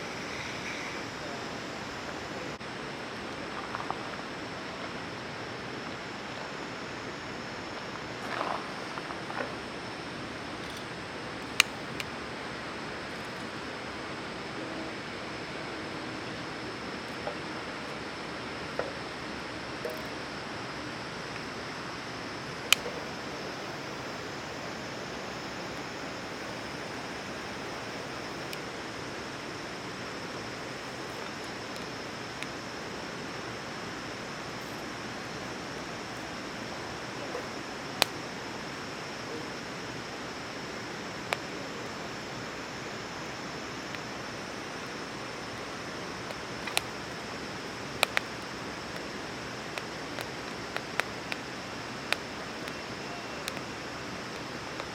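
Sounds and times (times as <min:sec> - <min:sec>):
fire hissing: 0:00.0 - 0:54.9
wood popping crackles: 0:10.4 - 0:13.8, 0:22.4 - 0:28.7, 0:43.8 - 0:54.9.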